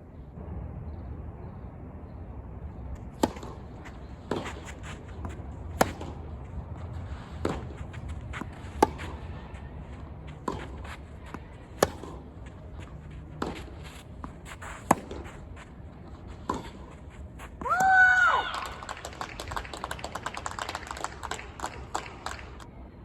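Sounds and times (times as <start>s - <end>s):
tennis ball bouncing: 3.0s - 18.2s
racket hitting tennis ball: 3.1s - 18.0s.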